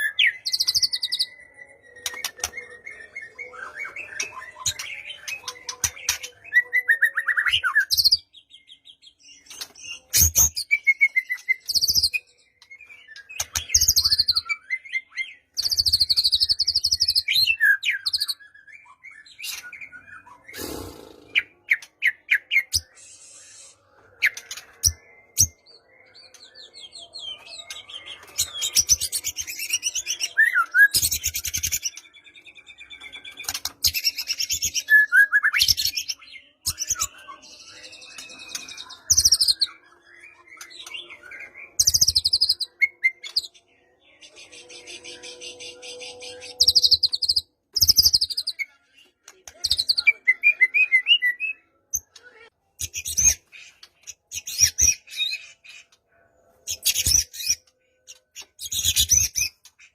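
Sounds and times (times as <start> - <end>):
bird singing whistled song: 0.0 - 20.9, 21.8 - 48.7, 49.5 - 52.0.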